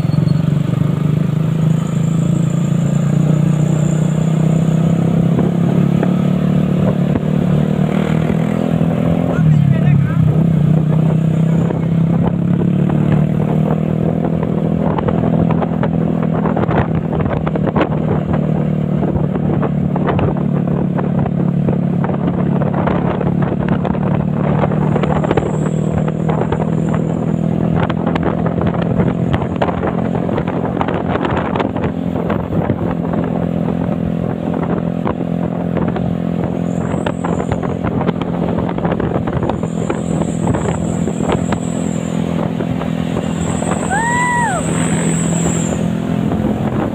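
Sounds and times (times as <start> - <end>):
truck engine droning: 16.1 - 46.9.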